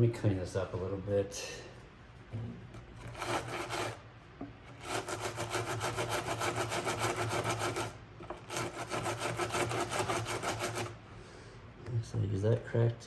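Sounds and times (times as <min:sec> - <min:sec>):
rubbing on hard plastic: 0:04.7 - 0:11.0.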